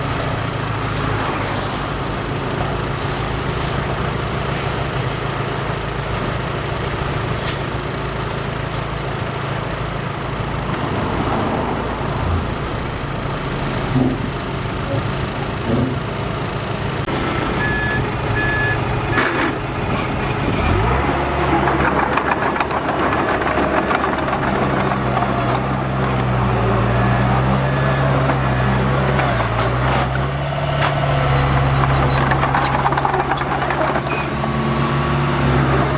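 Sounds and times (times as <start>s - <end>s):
diesel engine of heavy machinery: 0.0s - 35.9s
knocks and clanks: 13.7s - 26.5s
short high beeps: 17.5s - 19.3s.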